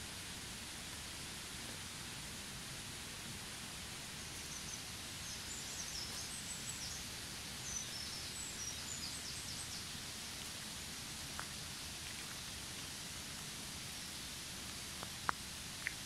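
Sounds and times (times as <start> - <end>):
outdoor ambience hiss: 0.0 - 16.0
small birds chirping: 4.1 - 10.8.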